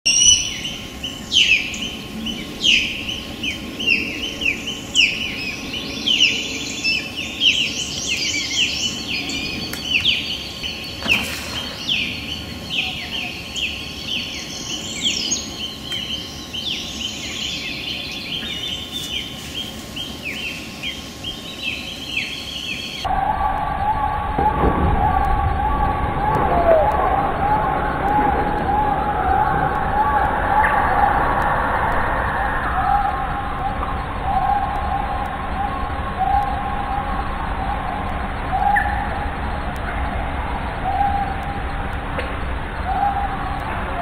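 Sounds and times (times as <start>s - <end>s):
small birds chirping: 0.0s - 23.1s
steady low hum: 0.2s - 44.0s
thin steady high tone: 25.2s - 41.9s.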